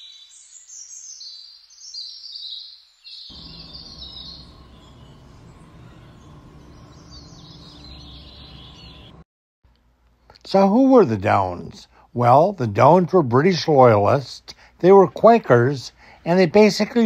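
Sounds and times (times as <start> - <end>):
small birds twittering: 0.0 - 9.2
steady low hum: 3.3 - 13.4.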